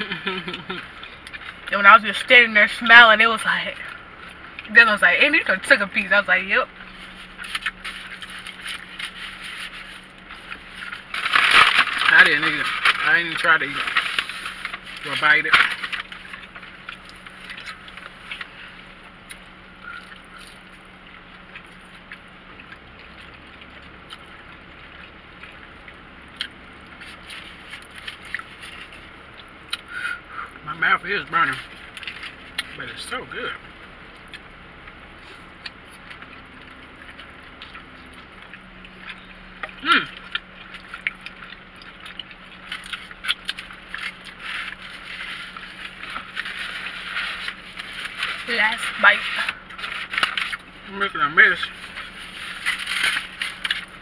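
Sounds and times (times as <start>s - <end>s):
low car interior hum: 0.0s - 54.0s
rustling: 6.8s - 22.3s, 40.2s - 54.0s
small clicks and crinkles: 6.8s - 29.9s, 31.4s - 33.5s, 34.1s - 54.0s
chewing: 6.8s - 30.6s, 31.6s - 32.9s, 33.6s - 50.8s, 51.5s - 54.0s.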